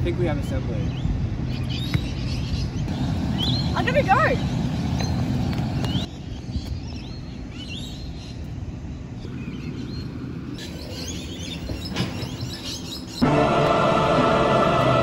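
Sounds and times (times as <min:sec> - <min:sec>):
birds chirping: 0:00.4 - 0:13.4
music: 0:13.2 - 0:15.0.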